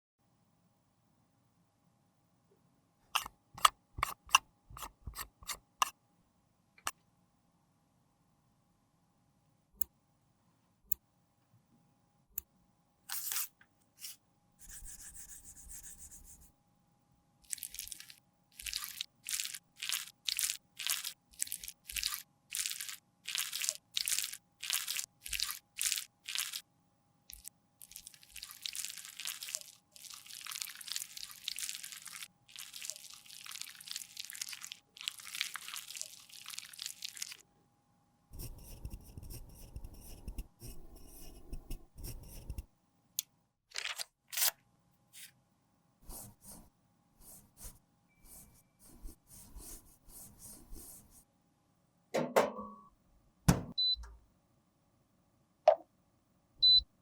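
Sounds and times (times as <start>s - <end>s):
crunchy scraping of makeup: 3.2s - 5.9s.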